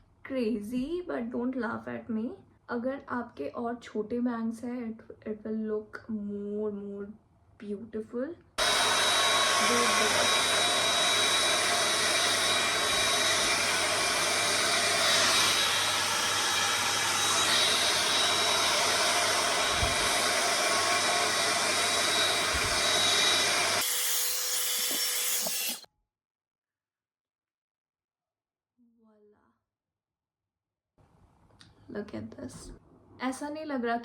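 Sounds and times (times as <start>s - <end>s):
hot air brush dryer running: 8.6s - 25.9s.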